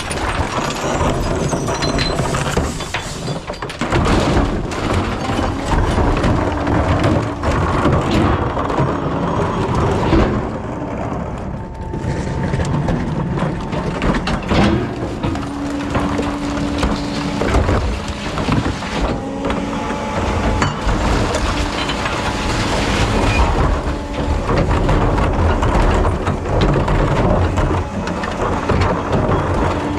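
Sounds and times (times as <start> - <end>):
recyclables clattering and crunching: 0.0 - 29.9
truck engine running under load: 0.0 - 29.9
hydraulic whine: 4.5 - 29.9.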